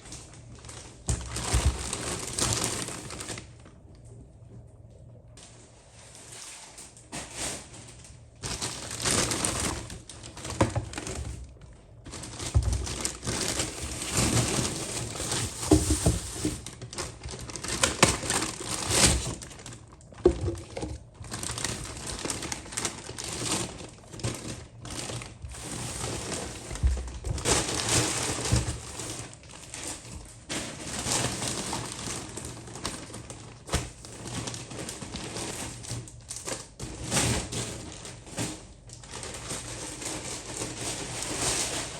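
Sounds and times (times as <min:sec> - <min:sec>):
crinkling and rustling: 0:00.0 - 0:41.9.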